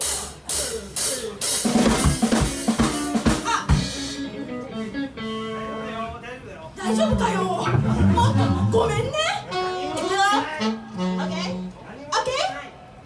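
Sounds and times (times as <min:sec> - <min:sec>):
drum kit beats: 0:00.0 - 0:04.5, 0:07.1 - 0:09.6
bass notes: 0:06.9 - 0:11.7.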